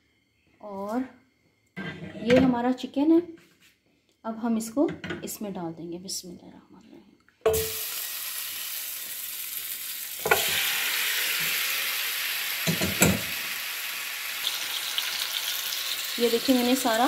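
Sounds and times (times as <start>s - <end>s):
chicken sizzling in hot oil: 7.5s - 17.0s
knocks in frying pan: 12.6s - 13.4s.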